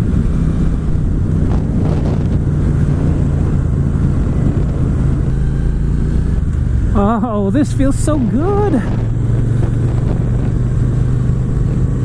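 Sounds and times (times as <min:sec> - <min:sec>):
motorcycle engine cruising: 0:00.0 - 0:12.0
wind buffeting microphone: 0:00.0 - 0:12.0.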